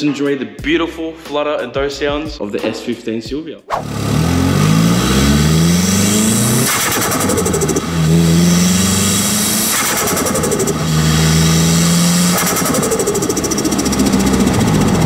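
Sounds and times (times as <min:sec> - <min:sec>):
turbocharged engine pulling: 0:03.8 - 0:15.0.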